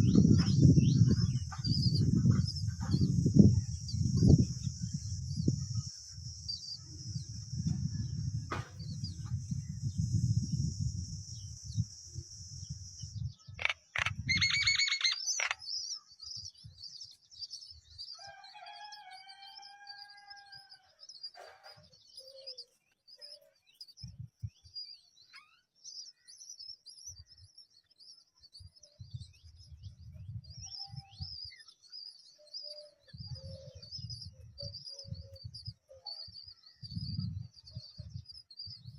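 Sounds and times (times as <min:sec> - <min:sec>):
small birds chirping: 0:00.0 - 0:38.9
low drawn-out bird call: 0:13.5 - 0:15.7.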